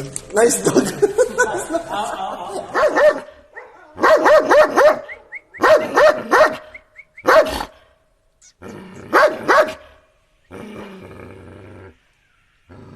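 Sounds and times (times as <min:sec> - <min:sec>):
dog barking: 0:02.7 - 0:07.9, 0:09.1 - 0:10.0.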